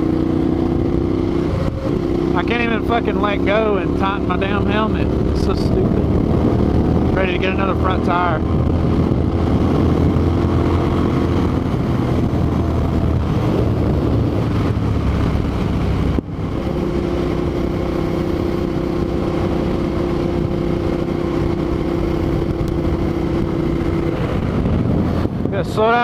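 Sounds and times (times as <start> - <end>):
motorcycle engine running: 0.0 - 26.0
wind rushing over microphone: 0.0 - 26.0.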